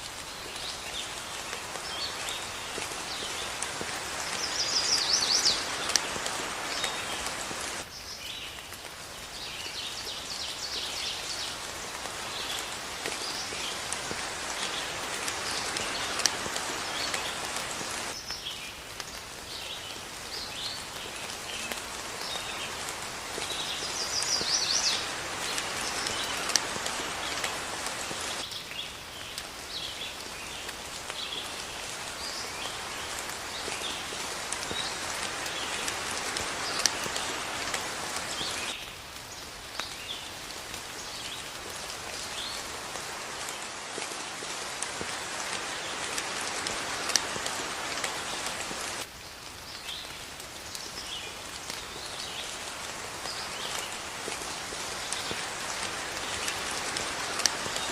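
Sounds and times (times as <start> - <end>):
steady rain: 0.0 - 57.9
birds chirping: 0.4 - 8.2.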